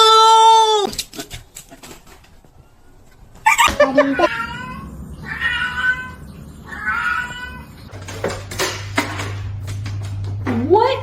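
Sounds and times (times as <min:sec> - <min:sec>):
cat meowing: 0:03.5 - 0:07.9
steady low hum: 0:04.2 - 0:11.0.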